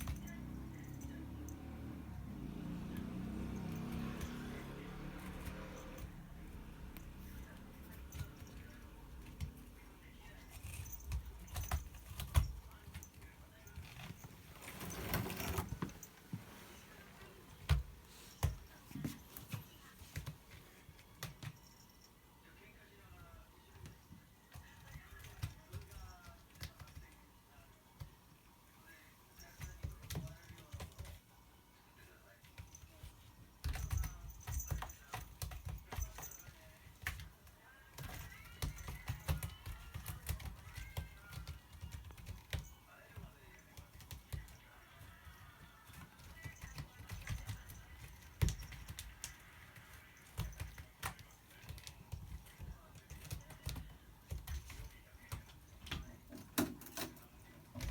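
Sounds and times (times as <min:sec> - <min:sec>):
cat claws scratching: 0:06.9 - 0:21.7.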